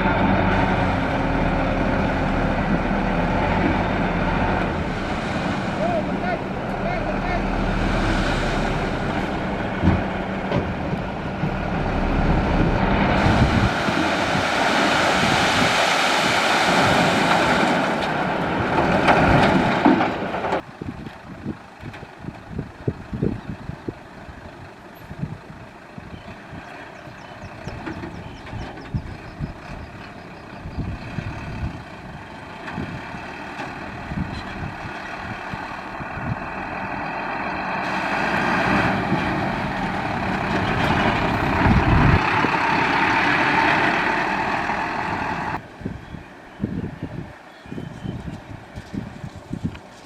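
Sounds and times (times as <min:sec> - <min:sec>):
dump truck engine running: 0:00.0 - 0:45.7
knocks and clunks: 0:09.2 - 0:11.6, 0:17.3 - 0:20.7
rush of noise: 0:10.8 - 0:18.0.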